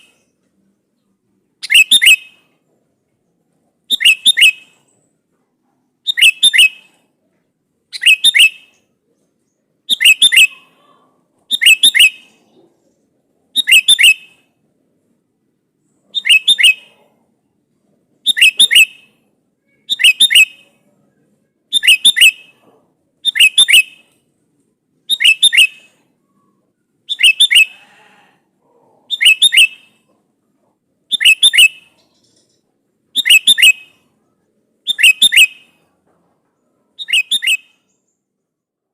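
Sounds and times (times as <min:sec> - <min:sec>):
bulbul calling: 0:01.6 - 0:02.5, 0:03.9 - 0:04.9, 0:06.0 - 0:07.0, 0:07.9 - 0:12.9, 0:13.6 - 0:14.4, 0:16.1 - 0:17.2, 0:18.2 - 0:20.8, 0:21.7 - 0:24.2, 0:25.1 - 0:27.8, 0:29.0 - 0:30.2, 0:31.1 - 0:34.1, 0:34.8 - 0:35.9, 0:37.0 - 0:38.1.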